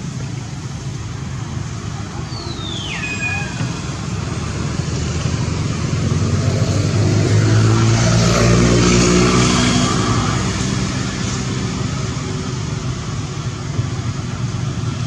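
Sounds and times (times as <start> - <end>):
motor vehicle passing by: 1.6 - 12.6.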